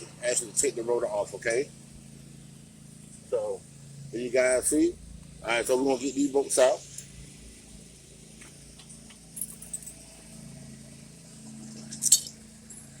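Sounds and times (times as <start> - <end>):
low steady hum: 0.0 - 13.0
handling noise: 8.3 - 10.1.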